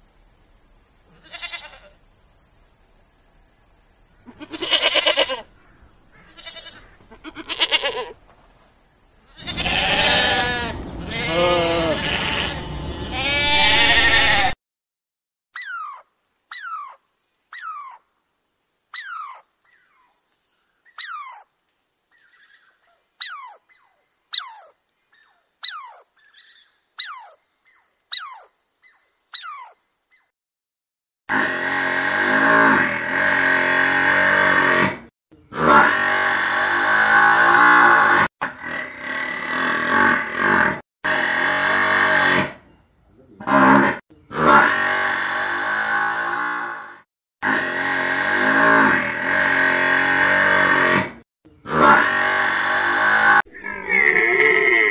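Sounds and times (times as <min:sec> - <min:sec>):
sheep bleating: 0:01.1 - 0:02.0, 0:04.3 - 0:05.5, 0:06.1 - 0:08.2, 0:09.3 - 0:14.6.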